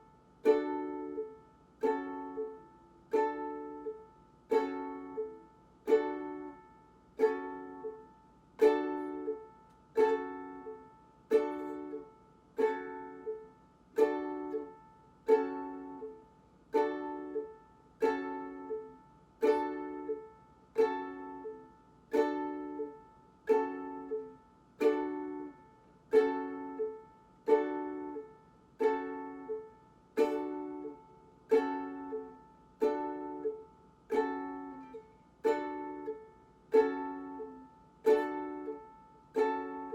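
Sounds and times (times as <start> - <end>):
ukulele chords strummed: 0.0 - 39.9.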